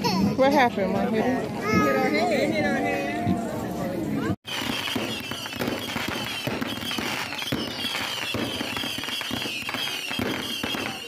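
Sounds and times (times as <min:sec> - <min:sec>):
fireworks crackling: 0:04.4 - 0:11.0
firework whistle: 0:04.5 - 0:11.0.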